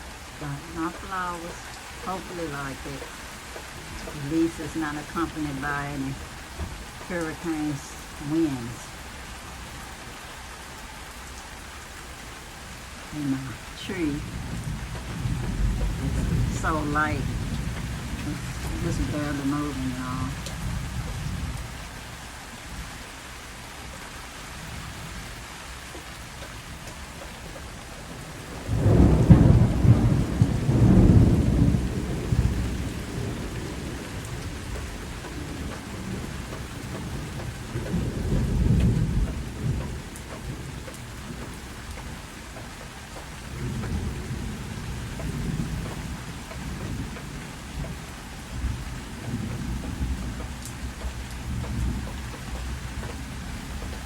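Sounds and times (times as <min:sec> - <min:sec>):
steady rain: 0:00.0 - 0:54.0
thunder rumbling: 0:13.1 - 0:22.0, 0:28.0 - 0:42.3, 0:43.4 - 0:54.0.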